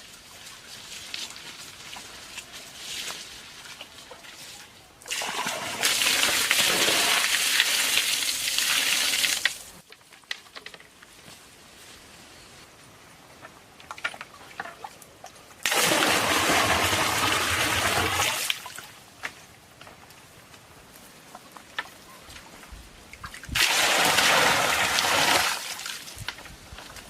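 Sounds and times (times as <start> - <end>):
water pouring and splashing: 0.0 - 9.8, 15.6 - 19.0, 23.1 - 26.6
small clicks and knocks: 9.4 - 11.1.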